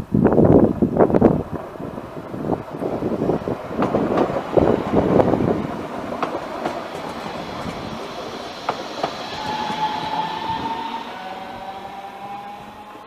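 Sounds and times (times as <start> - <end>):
train wheels clicking over rails: 1.1 - 13.0
high-pitched squeal: 6.8 - 13.0.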